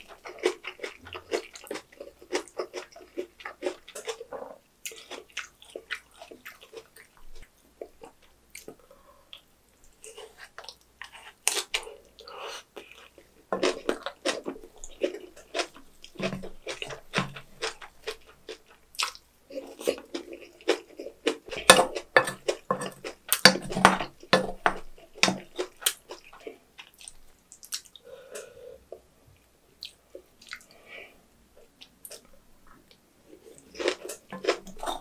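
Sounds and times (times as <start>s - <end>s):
wet crunching chewing: 0.0s - 28.0s, 33.5s - 35.0s.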